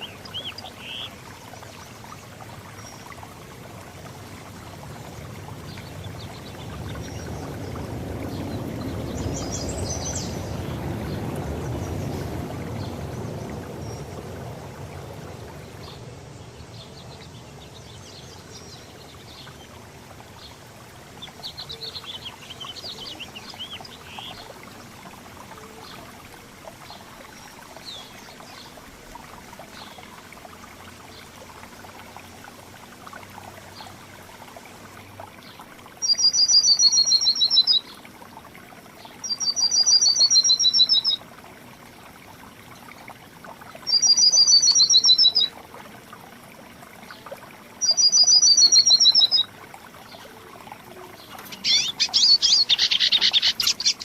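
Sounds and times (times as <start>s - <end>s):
songbird trilling: 36.0s - 37.9s, 39.3s - 41.2s, 43.9s - 45.5s, 47.8s - 49.5s, 51.3s - 54.0s
faint bird chirps: 50.1s - 54.0s
loud bird calls: 51.2s - 54.0s.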